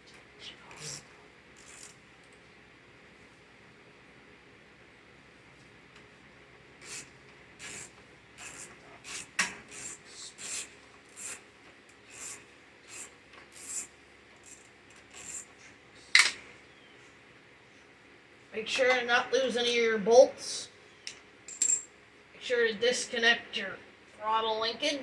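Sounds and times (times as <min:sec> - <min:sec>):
scraping strokes: 0:12.1 - 0:15.5.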